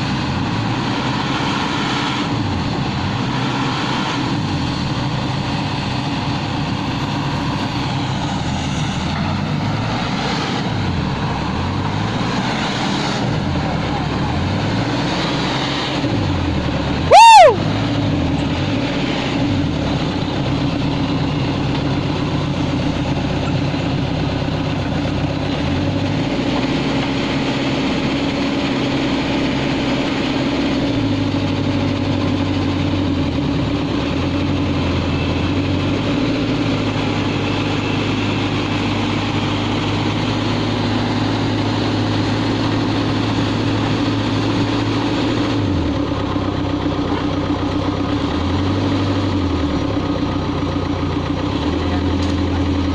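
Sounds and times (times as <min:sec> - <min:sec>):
diesel engine running: 0:00.0 - 0:52.9
high-pitched squeal: 0:17.0 - 0:17.8.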